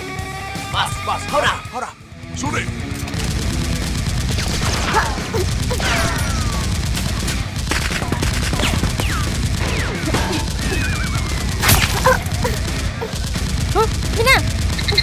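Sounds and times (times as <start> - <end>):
loud crack: 3.1 - 15.0
rapid gunfire: 3.1 - 15.0.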